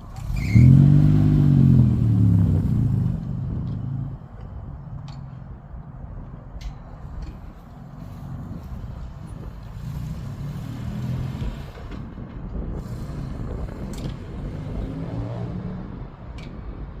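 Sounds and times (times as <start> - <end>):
car engine pulling away: 0.0 - 4.3, 9.4 - 12.2, 12.8 - 16.0.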